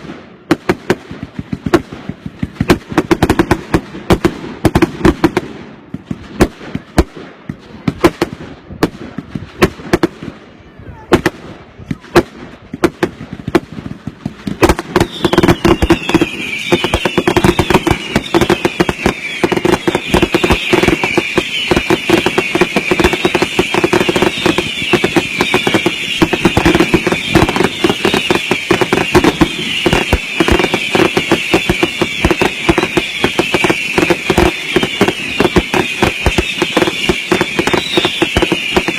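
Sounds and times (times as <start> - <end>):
firework bangs: 0.0 - 38.9
rapid-fire firework cracks: 0.0 - 38.9
high firework whistles: 13.1 - 38.9.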